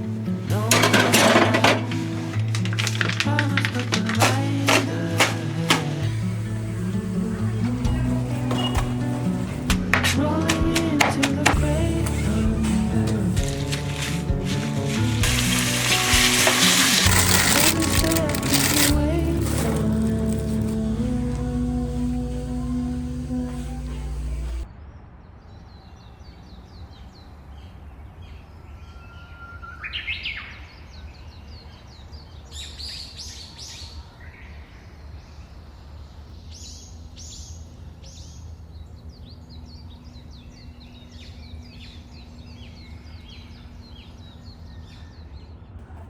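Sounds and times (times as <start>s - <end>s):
songbirds chirping and singing: 0.0s - 24.6s.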